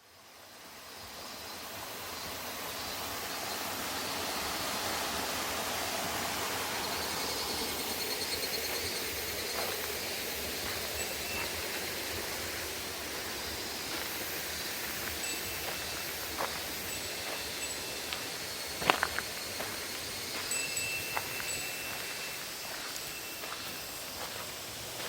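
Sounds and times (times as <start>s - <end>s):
rushing falling water: 1.8s - 21.3s.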